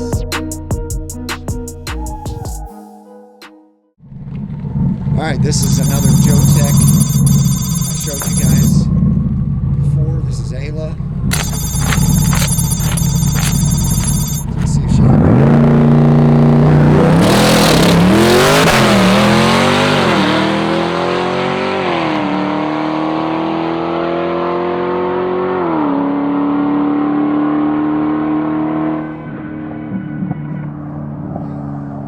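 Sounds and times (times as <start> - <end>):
drag car accelerating: 14.6 - 32.0.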